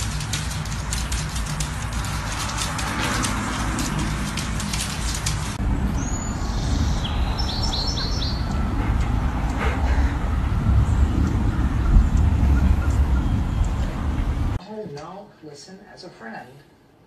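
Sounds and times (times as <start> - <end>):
rapid sharp clicks: 0.0 - 5.6
low outdoor rumble: 0.0 - 14.6
bird chirping: 5.8 - 8.8, 10.8 - 14.2.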